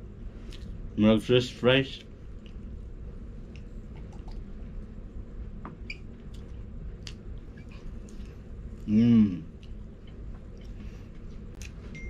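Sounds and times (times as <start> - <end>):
low background hum: 0.0 - 12.0
person chewing food: 6.1 - 11.8.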